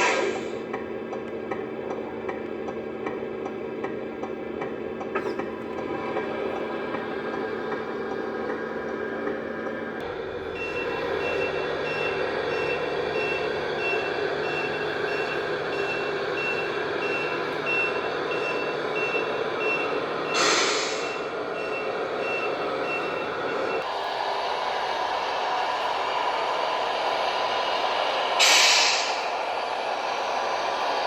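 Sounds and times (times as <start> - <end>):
air brake hiss: 0.0 - 0.6, 20.3 - 21.3, 28.4 - 29.4
engine hum: 0.0 - 31.0
reversing beeper: 10.5 - 23.8.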